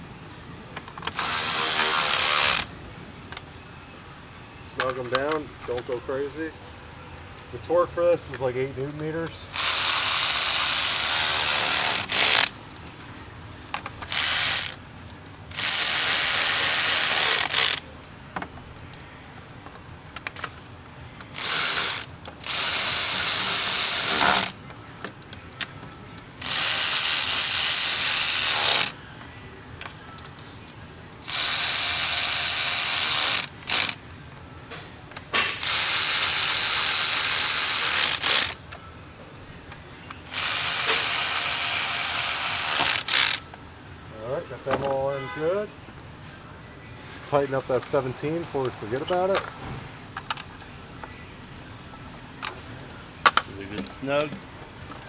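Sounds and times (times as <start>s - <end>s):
ratchet clicking: 0.9s - 2.7s, 9.5s - 12.6s, 13.7s - 14.8s, 15.5s - 17.9s, 21.2s - 24.6s, 26.4s - 29.0s, 31.2s - 34.0s, 35.4s - 38.6s, 40.2s - 43.5s.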